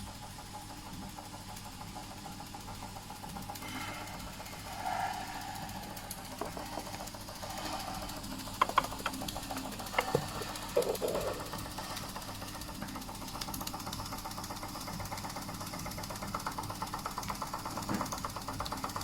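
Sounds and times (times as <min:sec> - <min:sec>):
model steam engine running: 0:00.0 - 0:19.0
sharp clicks: 0:08.6 - 0:11.5.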